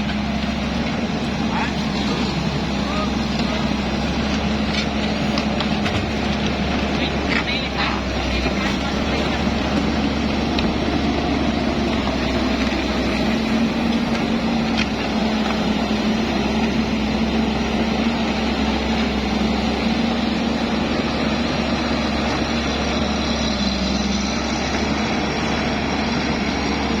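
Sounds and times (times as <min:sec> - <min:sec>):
machine engine running: 0:00.0 - 0:27.0.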